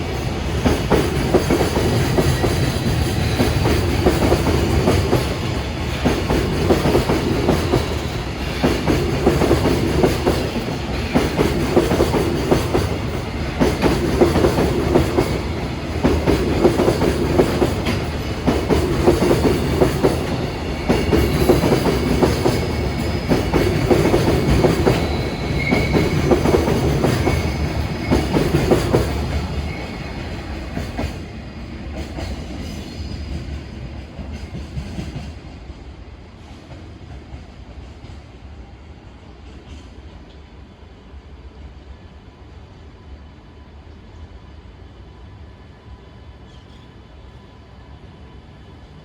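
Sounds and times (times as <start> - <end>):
freight train wheels clacking: 0.0 - 38.4.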